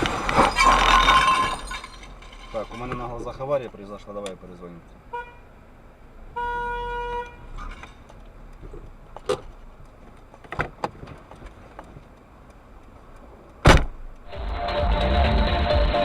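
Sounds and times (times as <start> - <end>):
low traffic noise: 0.0 - 16.0
car horn honk: 5.1 - 5.5, 6.3 - 7.6.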